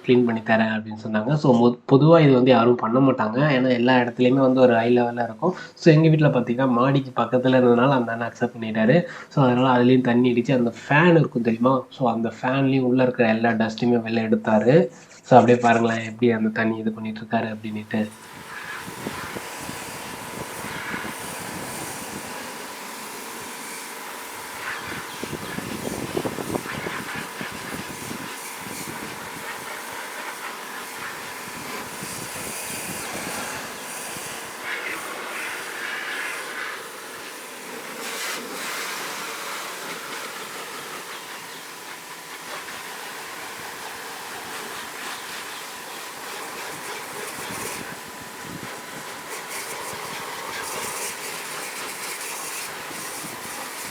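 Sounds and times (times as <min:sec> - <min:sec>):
faint steady whine: 0:14.9 - 0:53.9
water jet hissing on metal: 0:17.6 - 0:53.9.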